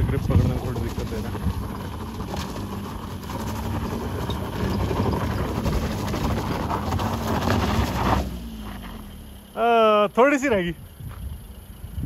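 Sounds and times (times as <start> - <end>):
tyres on loose gravel: 0.0 - 11.5
small car engine under load: 0.0 - 12.0.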